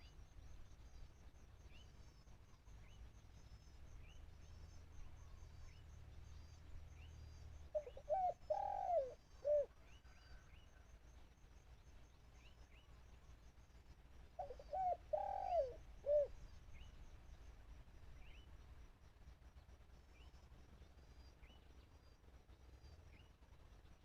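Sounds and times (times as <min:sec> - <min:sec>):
dove cooing: 0:07.7 - 0:09.7, 0:14.4 - 0:16.4.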